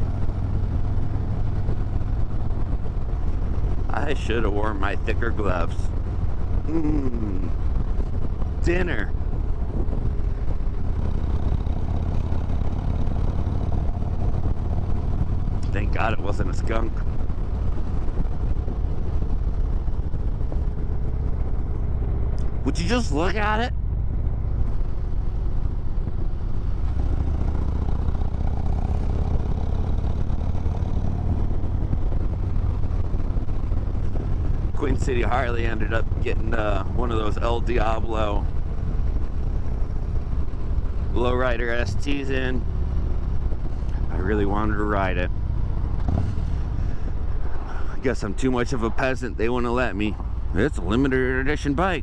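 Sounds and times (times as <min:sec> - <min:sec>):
motorcycle engine rumbling: 0:00.0 - 0:52.0.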